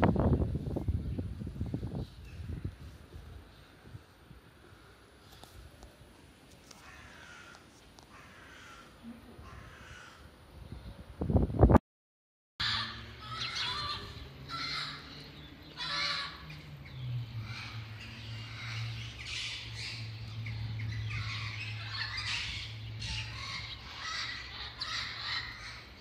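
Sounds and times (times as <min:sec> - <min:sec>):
birds calling: 0:06.6 - 0:10.3, 0:12.6 - 0:26.0.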